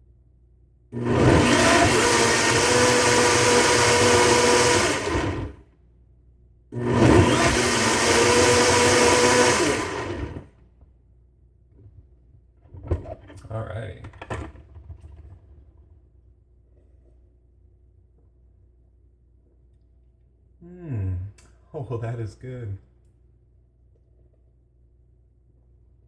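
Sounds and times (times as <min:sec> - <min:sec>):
blender motor running: 0:01.0 - 0:05.6, 0:06.8 - 0:10.5.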